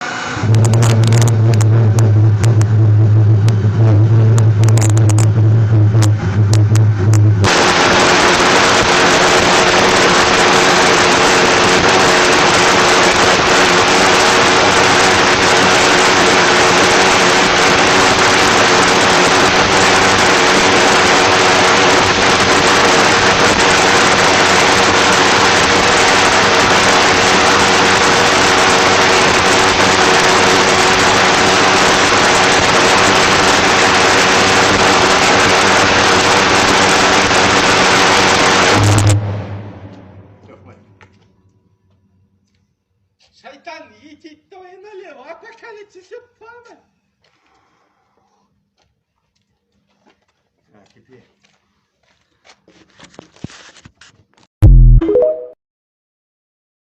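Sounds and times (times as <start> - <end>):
pulsejet engine roaring: 0.0 - 41.2.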